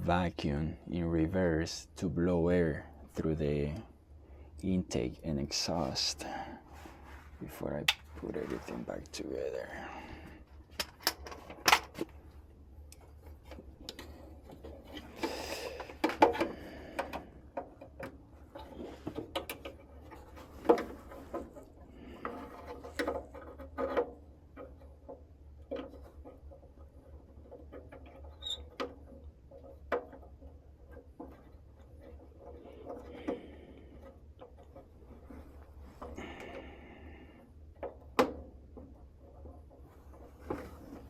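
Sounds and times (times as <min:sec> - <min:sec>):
rustling: 0:04.9 - 0:16.1, 0:18.2 - 0:41.0
hands handling metal parts: 0:10.0 - 0:25.0.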